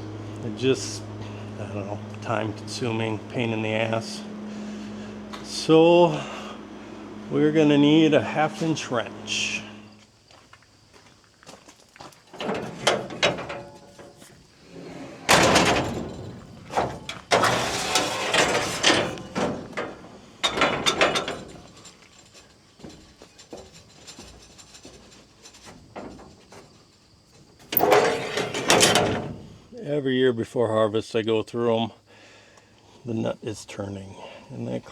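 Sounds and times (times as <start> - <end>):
metal clatter: 12.3 - 29.6.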